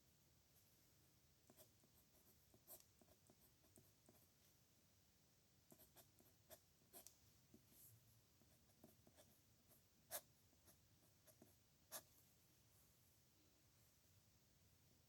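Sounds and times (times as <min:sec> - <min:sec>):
pen scratching on paper: 0:05.7 - 0:07.1, 0:07.7 - 0:12.1.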